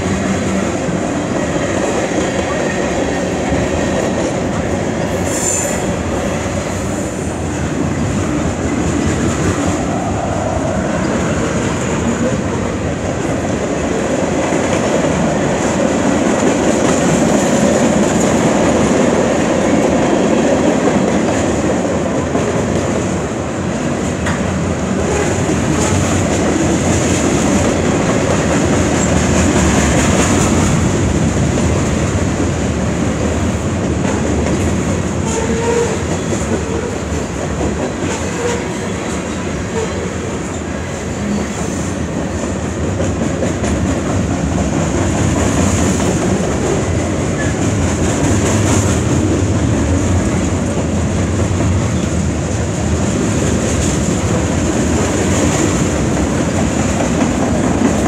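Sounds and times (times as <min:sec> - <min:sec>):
freight train wheels rumbling on rail: 0:00.0 - 0:58.0.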